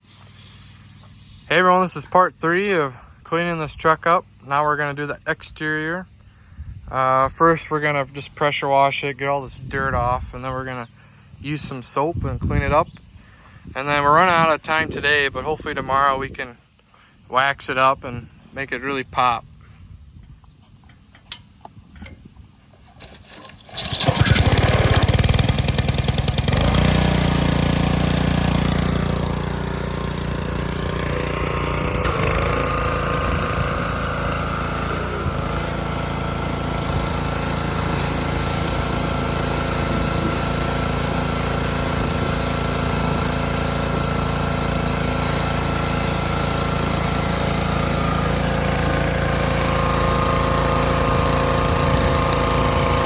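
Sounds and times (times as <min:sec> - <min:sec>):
pressure washer engine running: 0:23.7 - 0:53.0.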